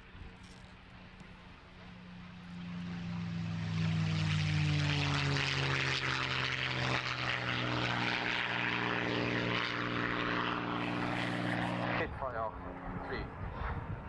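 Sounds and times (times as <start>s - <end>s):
propeller aircraft engine drone: 0.0s - 14.0s.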